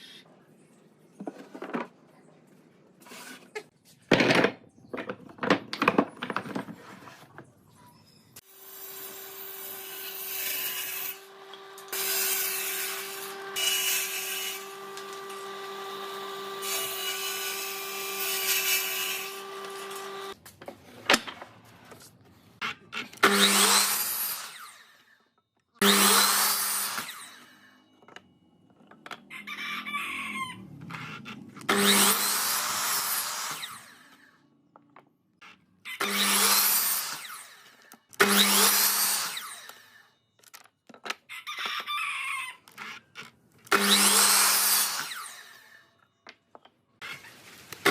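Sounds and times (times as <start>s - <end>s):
power tool cutting wood: 8.4s - 20.4s, 23.2s - 25.1s, 25.8s - 27.7s, 30.9s - 34.3s, 36.0s - 40.0s, 43.7s - 45.8s.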